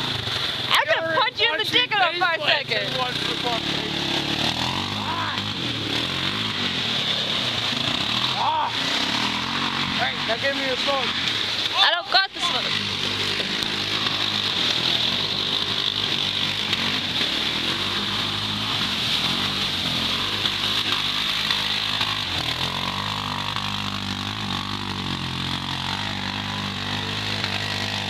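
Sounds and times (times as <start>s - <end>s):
atv engine idling: 0.0s - 28.0s.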